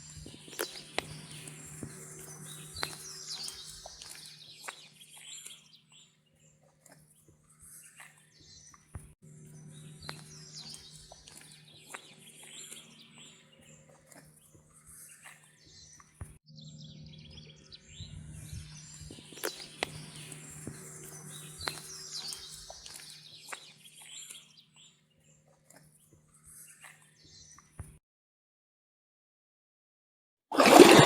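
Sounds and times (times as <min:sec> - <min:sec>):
steady low hum: 0:00.0 - 0:04.5, 0:16.6 - 0:22.8
small birds chirping: 0:00.0 - 0:27.9.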